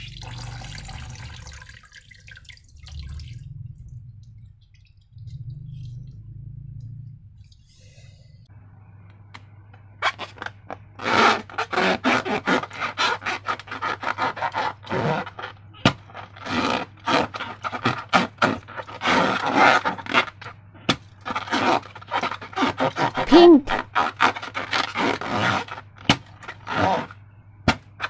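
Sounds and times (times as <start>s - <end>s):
rubber balloon rubbing: 10.0s - 27.8s.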